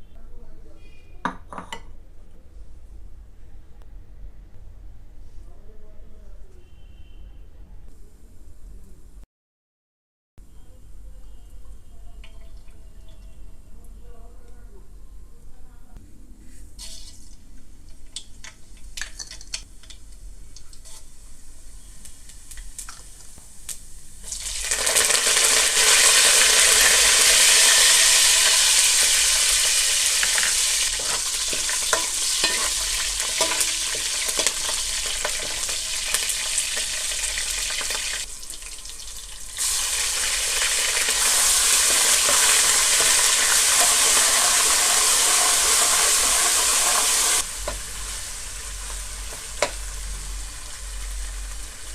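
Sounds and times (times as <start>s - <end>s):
stirring in a pan: 16.6s - 23.3s, 29.6s - 40.1s
food sizzling in hot oil: 16.8s - 17.4s, 18.2s - 51.9s.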